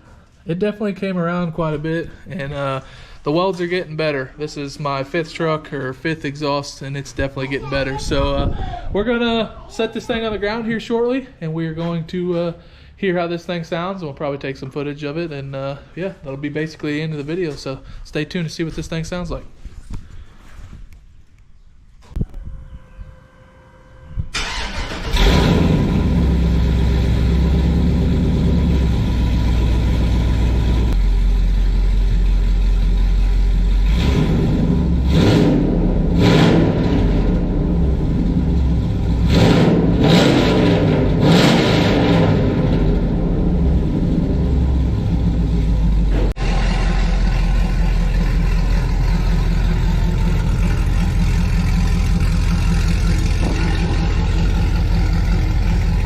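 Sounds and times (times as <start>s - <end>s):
truck engine idling and revving: 24.4s - 56.0s.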